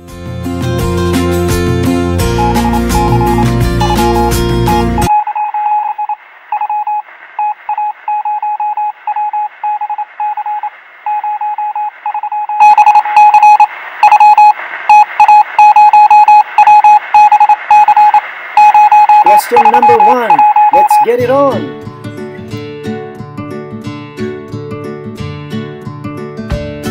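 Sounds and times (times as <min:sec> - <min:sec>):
music: 0:00.0 - 0:05.1, 0:21.1 - 0:26.9
electronic beeping: 0:02.3 - 0:21.6.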